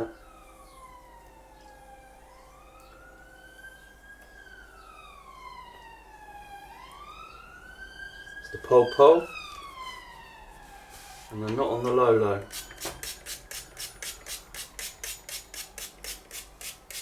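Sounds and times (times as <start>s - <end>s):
faint wailing siren: 0.0s - 13.0s.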